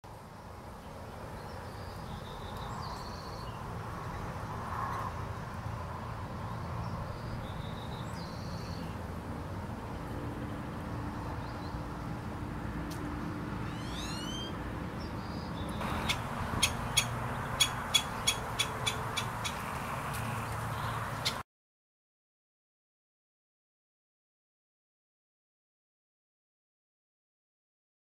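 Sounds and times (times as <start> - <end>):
outdoor background noise: 0.0 - 21.4
bird rising notes: 13.6 - 14.6.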